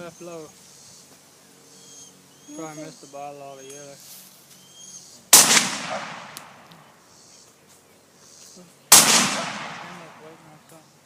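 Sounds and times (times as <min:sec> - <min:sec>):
gunshots with echo: 0:05.4 - 0:06.6, 0:08.9 - 0:10.3.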